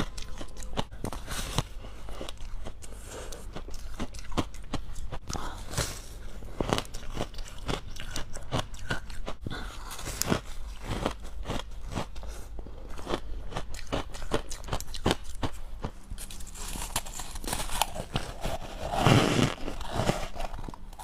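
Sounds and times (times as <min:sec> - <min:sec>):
person crunching ice: 0:16.2 - 0:21.0.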